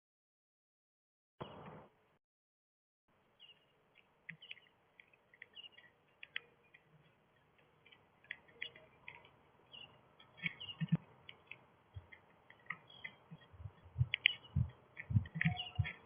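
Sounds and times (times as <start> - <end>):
birds chirping: 3.3 - 16.0
soft low thumps: 13.3 - 16.0.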